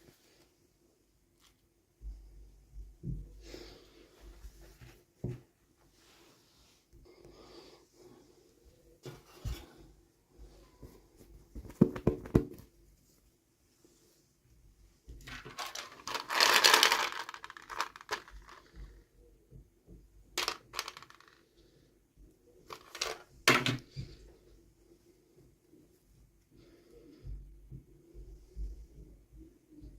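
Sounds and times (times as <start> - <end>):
plastic toys clicking and knocking: 15.2 - 18.9, 20.3 - 21.4, 22.7 - 23.9
packaging rustling and tearing: 15.3 - 18.6.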